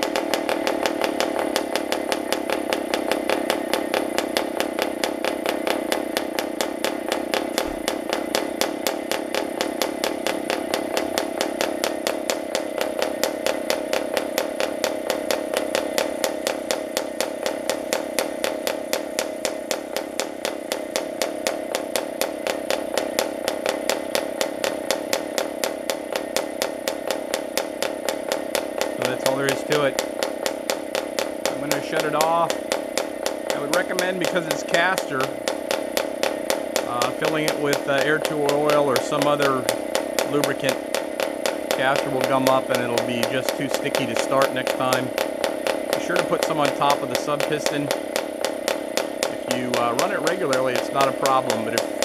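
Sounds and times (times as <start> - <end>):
model engine running: 0.0 - 52.0.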